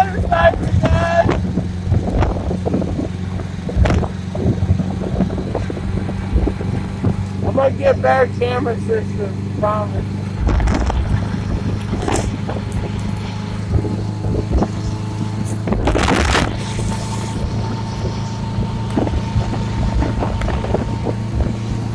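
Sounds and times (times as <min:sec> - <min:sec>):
motorcycle engine running: 0:00.0 - 0:21.9
wind buffeting microphone: 0:00.0 - 0:21.9.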